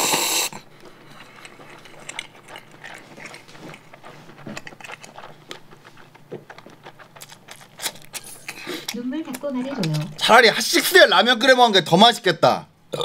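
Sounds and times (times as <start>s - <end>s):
mouth chewing noodles: 0.0s - 10.3s.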